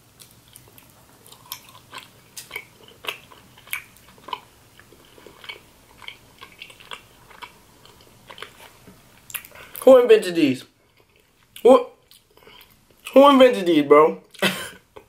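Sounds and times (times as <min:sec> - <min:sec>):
person chewing with mouth clicks: 0:00.2 - 0:09.8, 0:10.9 - 0:13.2.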